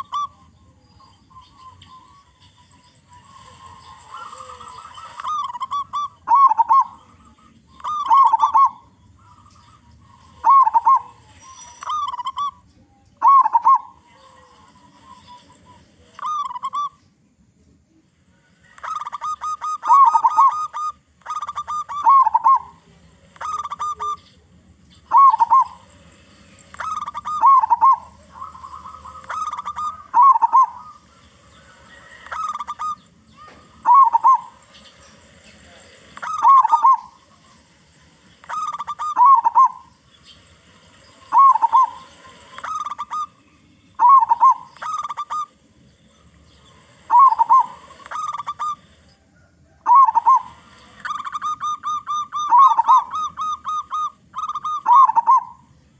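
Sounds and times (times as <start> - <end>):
dove cooing: 0.0 - 17.0, 18.4 - 55.9.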